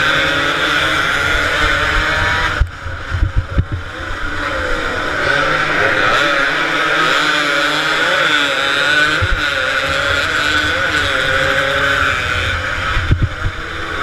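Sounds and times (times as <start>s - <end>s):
two-stroke motorcycle engines revving: 0.0s - 14.0s.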